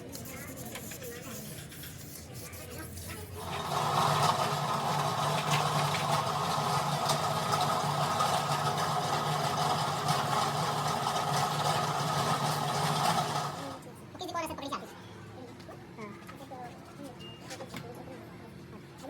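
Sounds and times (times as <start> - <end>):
machine motor humming and rattling: 3.2 - 13.9.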